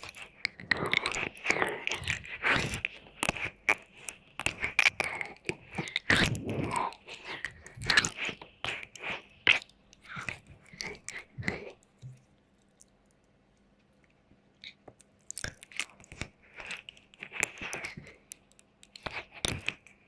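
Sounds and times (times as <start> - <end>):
wet mouth licking and smacking: 0.0 - 13.0, 14.6 - 20.0.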